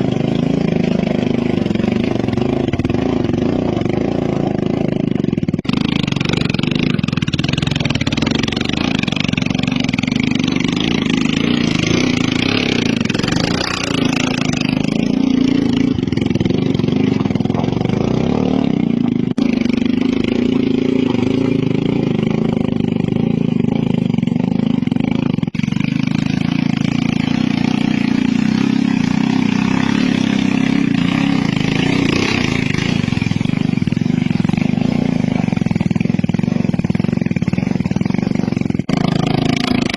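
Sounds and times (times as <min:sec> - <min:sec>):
motorcycle engine revving under load: 0:00.0 - 0:39.9.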